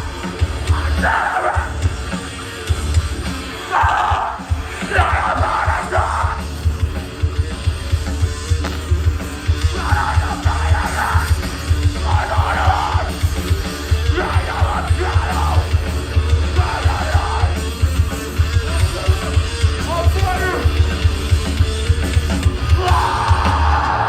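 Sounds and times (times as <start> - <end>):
hardcore punk band playing: 0.0 - 24.0
vocalist yelling: 0.7 - 1.9, 3.6 - 6.5, 9.7 - 13.3, 13.9 - 15.8, 16.4 - 17.6, 22.6 - 24.0.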